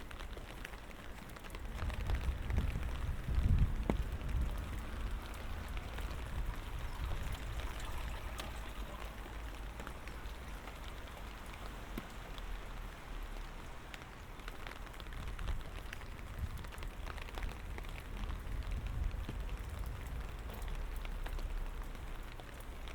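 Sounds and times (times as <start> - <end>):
light rain pattering: 0.0 - 22.9.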